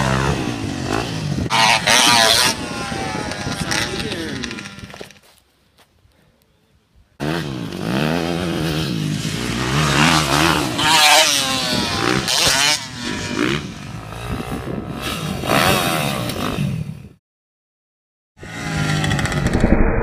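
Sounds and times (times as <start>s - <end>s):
dirt bike engine revving: 0.0s - 5.2s, 7.2s - 16.9s.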